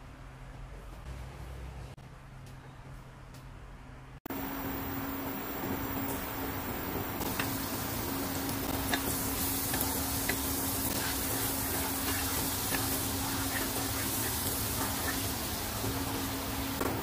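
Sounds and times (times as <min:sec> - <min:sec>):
garlic sizzling in oil: 0:04.4 - 0:17.0.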